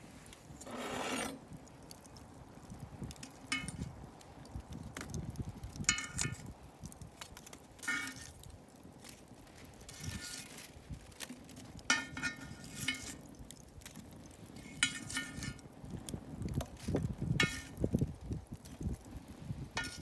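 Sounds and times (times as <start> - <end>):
metal cookware clinking: 14.8 - 15.6, 19.8 - 20.0.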